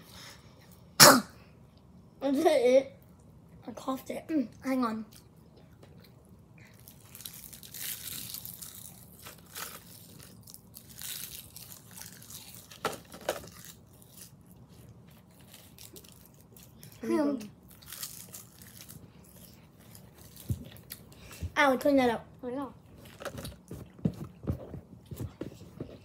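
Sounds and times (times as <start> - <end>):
seaweed crunching being chewed: 6.7 - 16.9, 17.6 - 21.1.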